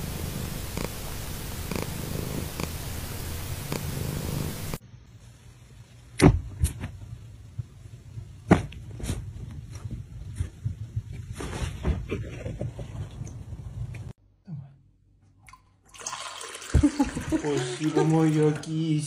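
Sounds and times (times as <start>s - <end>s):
cat purring: 0.0s - 4.8s
soft rustles: 8.8s - 14.0s.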